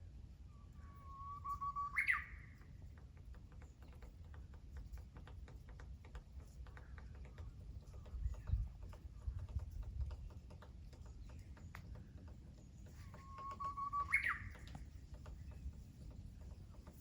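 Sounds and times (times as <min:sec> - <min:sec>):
bird whistling: 0:01.0 - 0:02.4, 0:13.2 - 0:14.6
woodpecker tapping on wood: 0:01.9 - 0:17.0.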